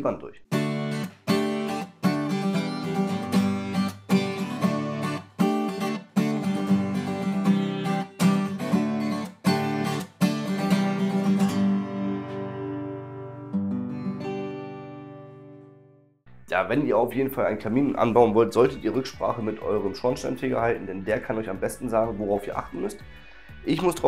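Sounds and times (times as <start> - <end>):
strummed acoustic guitar chords: 0.5 - 16.0.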